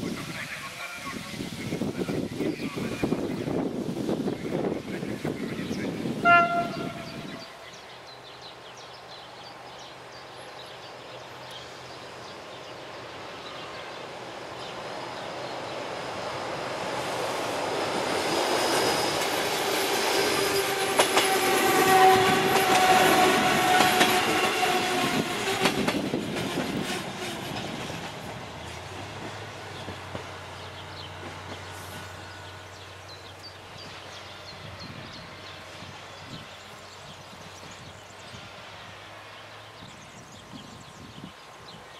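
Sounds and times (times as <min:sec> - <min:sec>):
railcar rumble passing: 0:00.0 - 0:41.9
train horn blast: 0:06.2 - 0:07.6, 0:20.4 - 0:25.9.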